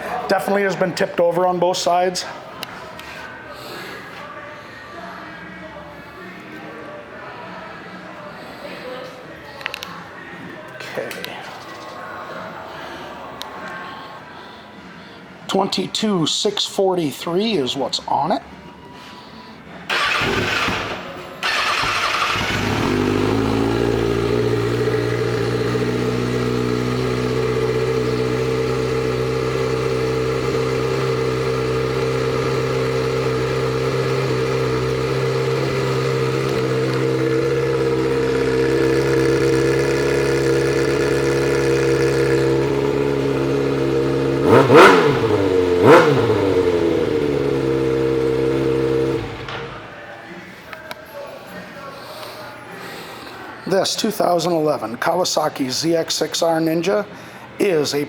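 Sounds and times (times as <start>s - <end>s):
engine starter cranking: 19.9s - 24.4s
motorcycle engine idling: 19.9s - 49.9s.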